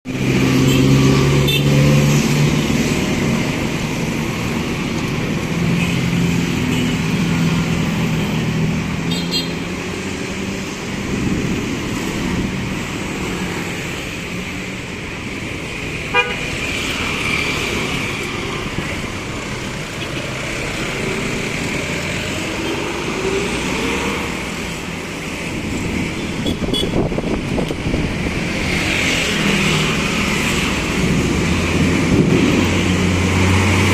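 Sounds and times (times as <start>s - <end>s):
passing cars and motorcycles: 0.1s - 33.9s
vehicle horn tooting: 9.1s - 9.6s, 16.1s - 16.4s, 26.4s - 27.0s.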